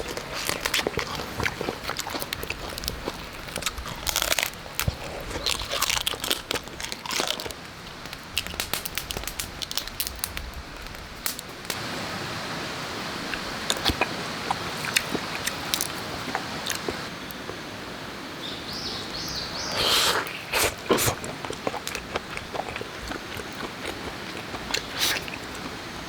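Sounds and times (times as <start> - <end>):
crab shell crunching: 0.0 - 11.6, 13.7 - 17.1, 19.8 - 26.0
steady hiss: 7.6 - 21.2.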